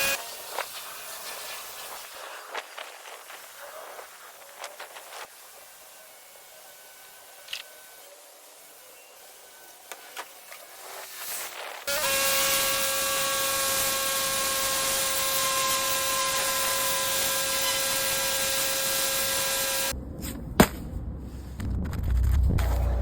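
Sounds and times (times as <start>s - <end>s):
pressure washer hissing: 0.0s - 7.4s, 8.2s - 19.9s
low rumble: 19.9s - 23.0s.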